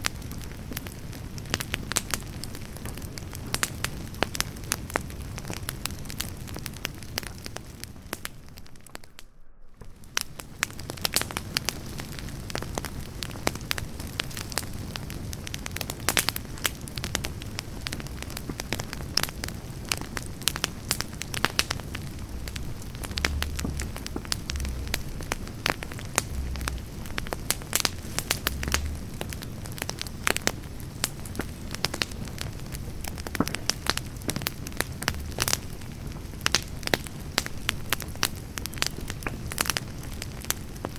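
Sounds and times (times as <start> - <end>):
campfire crackling and popping: 0.0 - 40.9.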